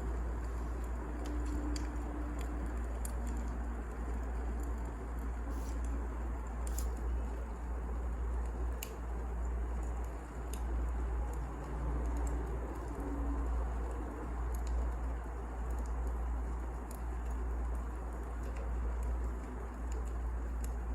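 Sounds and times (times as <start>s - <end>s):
wood fire crackling: 0.0s - 20.9s.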